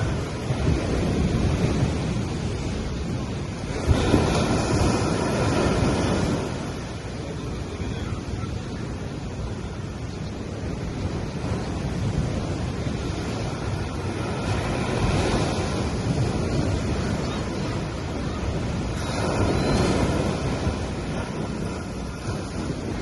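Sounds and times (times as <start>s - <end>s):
ocean waves on beach: 0.0s - 23.0s
wind buffeting microphone: 0.0s - 23.0s.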